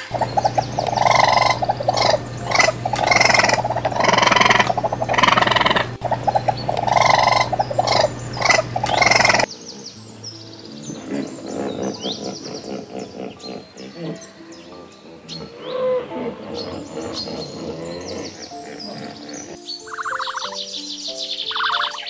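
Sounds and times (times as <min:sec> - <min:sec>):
steady low hum: 0:00.0 - 0:09.5
raccoon chittering: 0:00.0 - 0:09.9, 0:10.9 - 0:15.8, 0:16.4 - 0:20.8, 0:21.4 - 0:22.0
faint bird chirps: 0:00.0 - 0:22.0.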